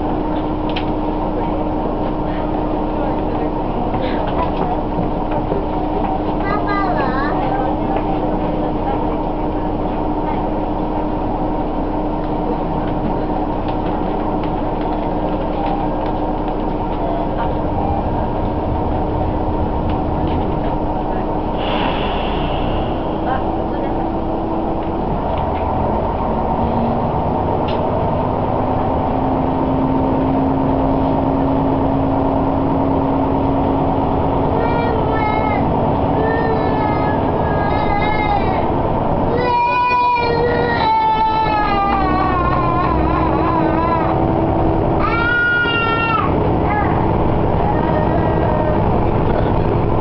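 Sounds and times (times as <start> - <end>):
railcar engine running: 0.0 - 50.0
held hum: 10.7 - 39.3.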